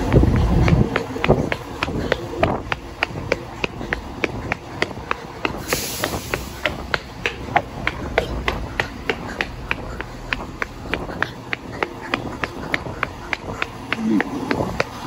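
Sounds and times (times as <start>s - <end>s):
train rumble: 0.0s - 15.0s
train wheels clicking: 0.0s - 15.0s.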